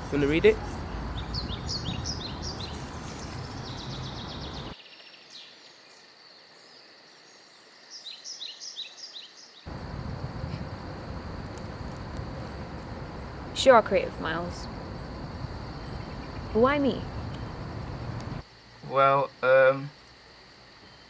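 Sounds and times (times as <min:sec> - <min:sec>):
small bird chirping: 0:00.0 - 0:05.1, 0:08.1 - 0:18.4
low background rumble: 0:09.7 - 0:18.4.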